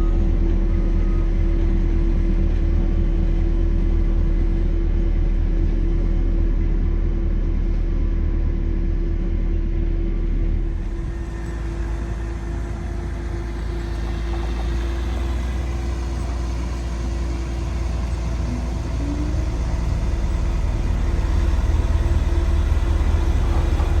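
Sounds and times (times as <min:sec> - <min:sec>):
heavy machinery engine rumbling: 0:10.2 - 0:24.0.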